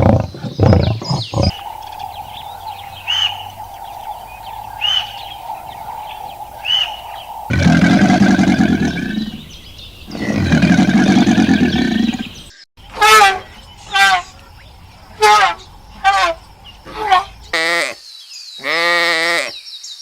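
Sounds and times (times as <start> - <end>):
large animal calling: 0.0 - 18.0
bird chirps: 0.0 - 18.7
steady high hum: 1.5 - 10.1, 12.8 - 17.5.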